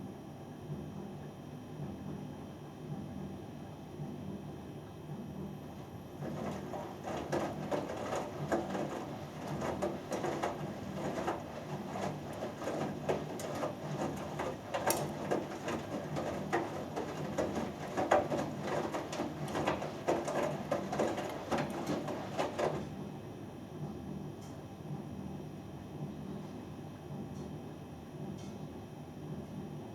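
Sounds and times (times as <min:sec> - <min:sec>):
washing machine low hum: 0:00.0 - 0:29.9
soft knocks of drum: 0:06.2 - 0:22.9
laundry sloshing in water: 0:06.2 - 0:23.0.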